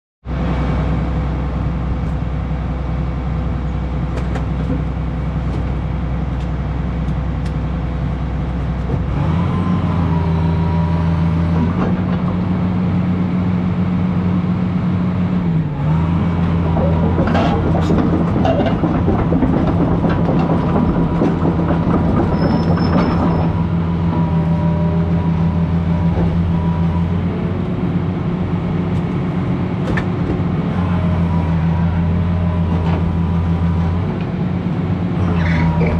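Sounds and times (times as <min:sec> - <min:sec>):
excavator diesel engine revving: 0:00.3 - 0:35.9
building cracking and crunching: 0:16.3 - 0:23.8.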